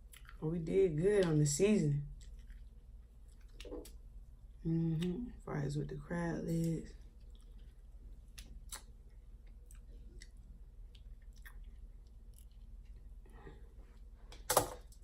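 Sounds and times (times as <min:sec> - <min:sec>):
chewing: 0:00.0 - 0:00.4, 0:02.1 - 0:04.0, 0:07.0 - 0:13.6.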